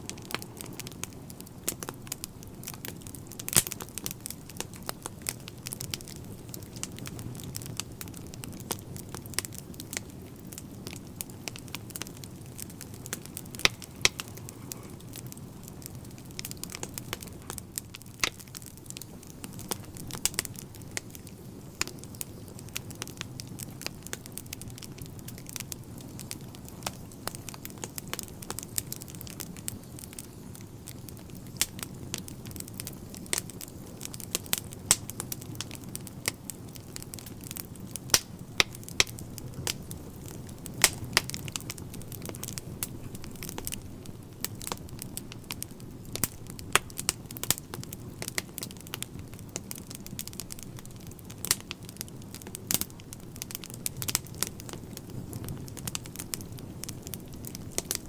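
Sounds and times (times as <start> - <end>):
logs crackling and popping: 0.0 - 58.0
low rumble of flame: 0.0 - 58.0.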